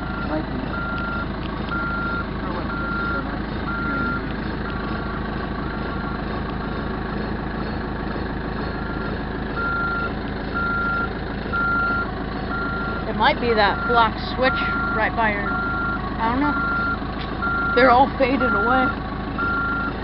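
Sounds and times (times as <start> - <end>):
reverse alarm beeping: 0.0 - 5.2, 6.0 - 20.0
diesel engine running: 0.0 - 20.0.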